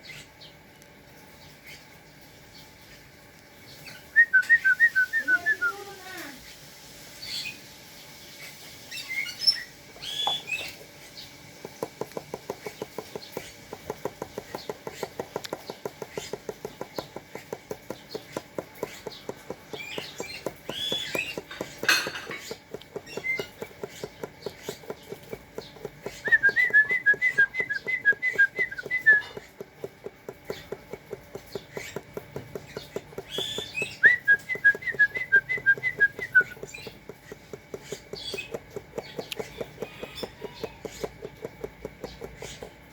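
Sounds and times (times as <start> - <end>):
trilled whistles: 4.1 - 5.8, 26.2 - 29.4, 33.3 - 36.9
dove pecking seed taps: 9.9 - 42.9.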